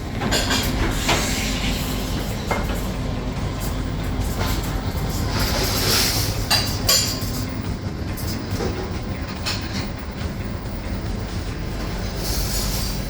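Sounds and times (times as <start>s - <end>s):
busy room background rumble: 0.0s - 13.0s.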